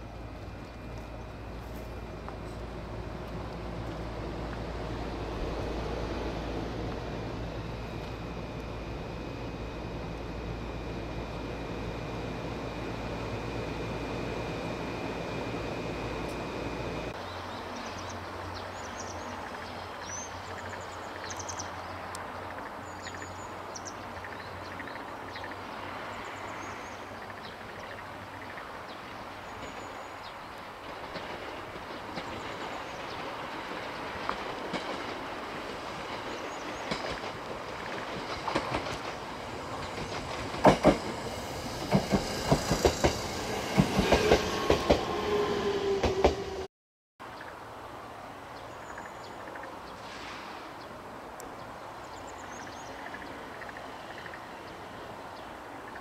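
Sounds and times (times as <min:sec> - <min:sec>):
train rumbling: 0:00.0 - 0:21.0, 0:21.6 - 0:46.7
wheels clacking over rail joints: 0:30.8 - 0:45.2.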